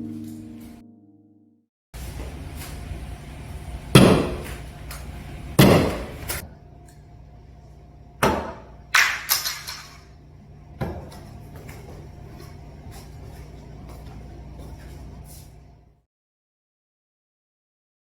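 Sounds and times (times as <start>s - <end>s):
low steady hum: 2.0s - 16.0s.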